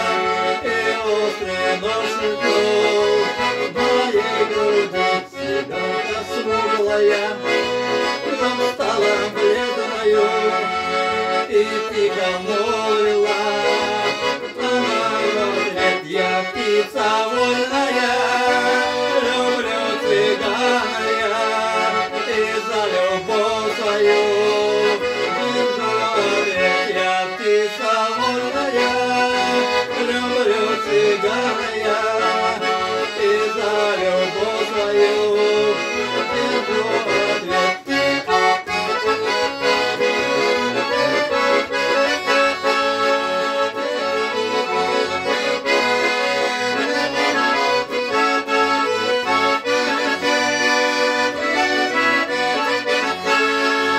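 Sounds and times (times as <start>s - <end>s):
accordion playing folk melody: 0.0s - 53.9s.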